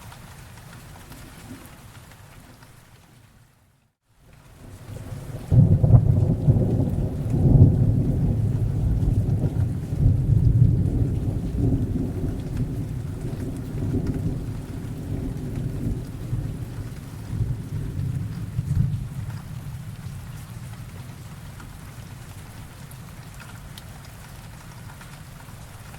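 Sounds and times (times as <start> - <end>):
steady rain: 0.0 - 25.9
rolling thunder rumble: 4.6 - 22.3.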